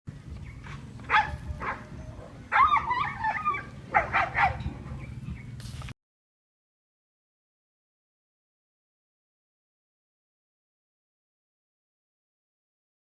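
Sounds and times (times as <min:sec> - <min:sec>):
low steady hum: 0:00.1 - 0:05.9
dog barking and yelping: 0:01.1 - 0:04.7.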